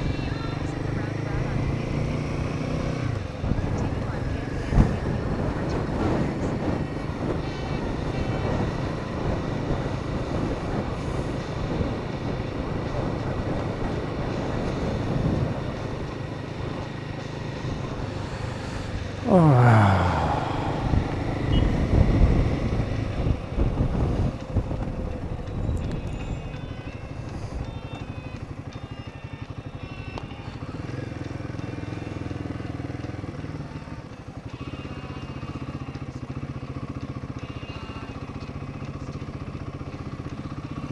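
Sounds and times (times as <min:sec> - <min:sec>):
wind and road noise: 0:00.0 - 0:34.4
motorcycle engine running: 0:00.0 - 0:40.9.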